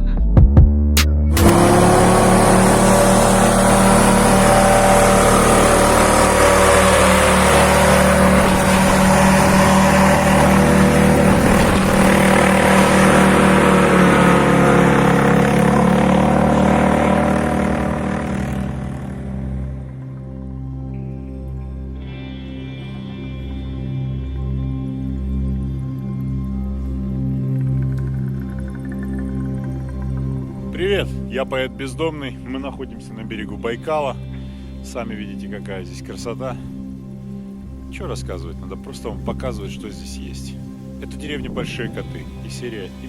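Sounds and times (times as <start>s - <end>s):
vehicle engine revving: 1.0s - 20.8s, 40.1s - 43.0s.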